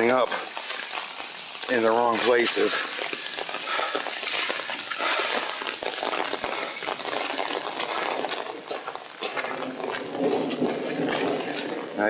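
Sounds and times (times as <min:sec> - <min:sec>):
rain falling: 0:00.0 - 0:12.0
runoff water running over gravel: 0:00.0 - 0:12.0.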